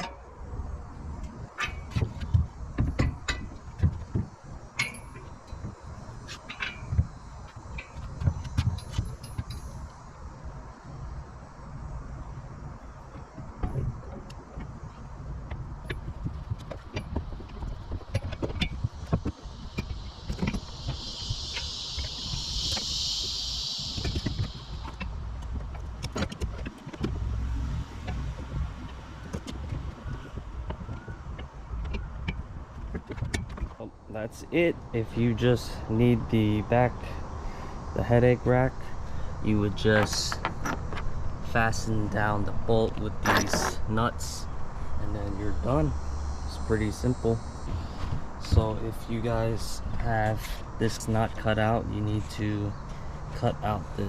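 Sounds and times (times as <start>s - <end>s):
steady hiss: 0.0s - 30.2s, 32.6s - 54.0s
metallic clinks and knocks: 4.8s - 5.7s, 7.7s - 10.0s
low rumble: 15.1s - 29.2s.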